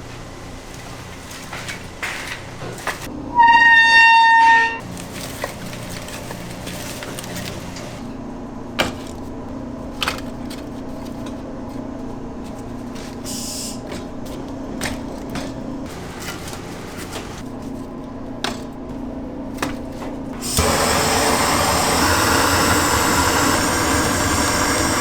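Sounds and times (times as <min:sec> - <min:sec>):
machine hum: 0:20.4 - 0:25.0.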